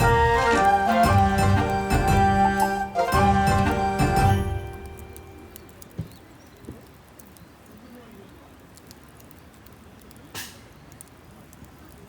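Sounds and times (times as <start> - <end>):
campfire crackling: 0.0 - 12.0
hissing pop: 10.3 - 10.8.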